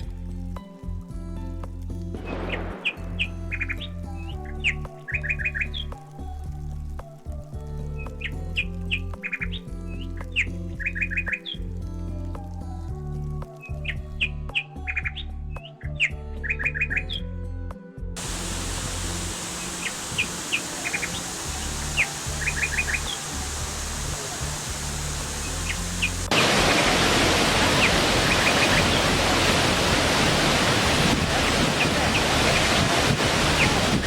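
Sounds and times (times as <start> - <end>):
soft background music: 0.0 - 34.0
rain hissing: 2.2 - 4.6, 18.2 - 34.0
birds chirping: 2.3 - 6.0, 18.2 - 34.0.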